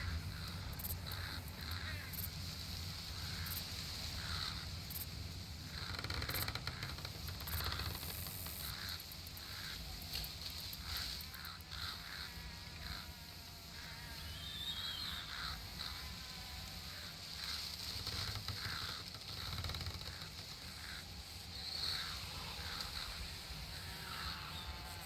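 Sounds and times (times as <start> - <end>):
bird warbling call: 13.8 - 16.0
birds chirping: 13.8 - 16.0.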